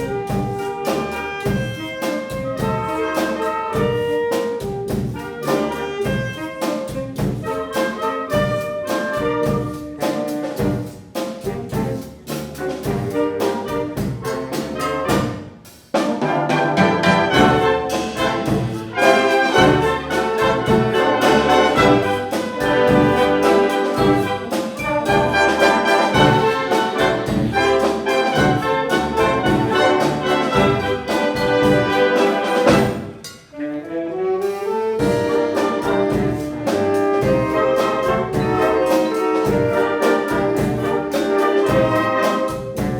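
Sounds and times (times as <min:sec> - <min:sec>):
percussion beat: 0:00.0 - 0:33.5, 0:35.0 - 0:42.9
brass band playing: 0:00.0 - 0:42.9.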